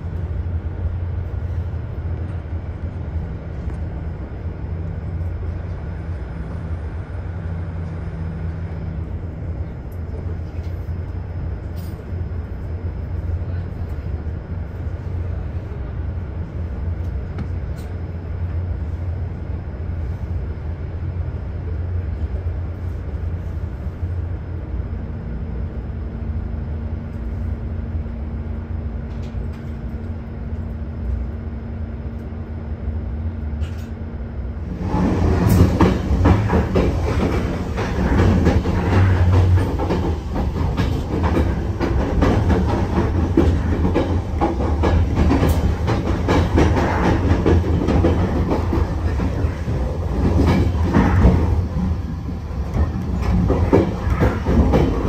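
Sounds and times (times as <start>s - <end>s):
train low rumble: 0.0s - 55.0s
wheels clattering over rail joints: 34.8s - 51.9s, 52.7s - 55.0s.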